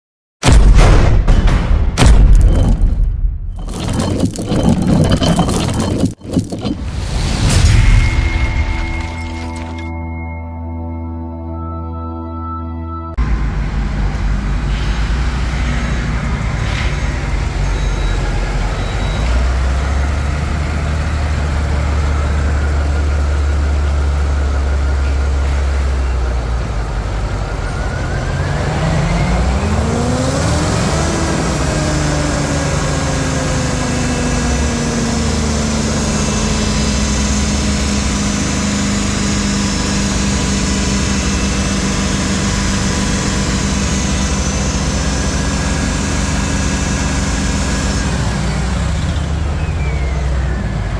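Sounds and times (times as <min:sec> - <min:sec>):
engine idling and revving: 0:13.2 - 0:50.9.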